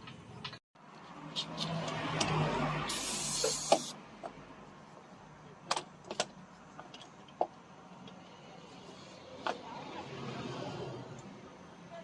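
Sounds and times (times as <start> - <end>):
hiss: 2.9 - 4.0.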